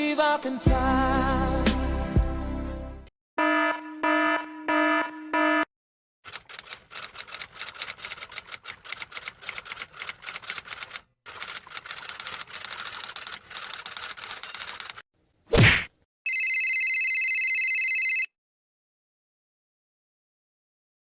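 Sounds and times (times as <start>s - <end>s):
typewriter keystrokes clattering: 6.3s - 15.0s.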